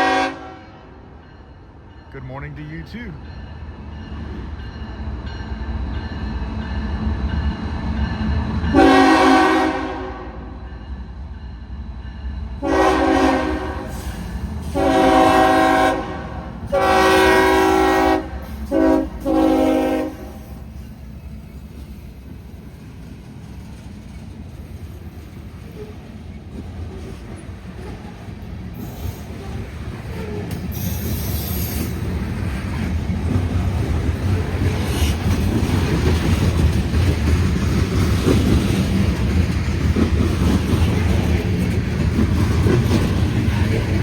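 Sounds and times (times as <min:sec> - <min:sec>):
locomotive air horn blasts: 0:00.0 - 0:00.8, 0:08.7 - 0:10.5, 0:12.6 - 0:14.1, 0:14.7 - 0:20.6
low rumble of train: 0:00.0 - 0:44.0.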